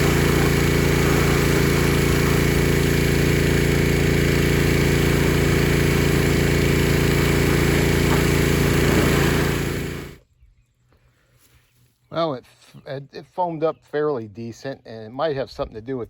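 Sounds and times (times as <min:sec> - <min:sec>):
small gasoline engine running: 0:00.0 - 0:10.2.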